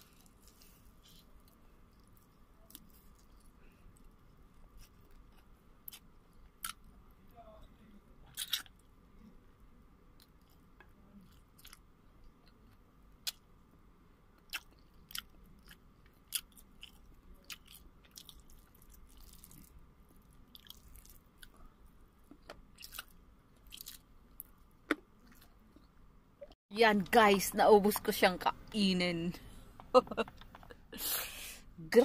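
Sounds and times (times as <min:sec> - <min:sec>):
person chewing food: 0:00.0 - 0:06.9, 0:08.3 - 0:08.9, 0:10.2 - 0:13.5, 0:14.3 - 0:25.9.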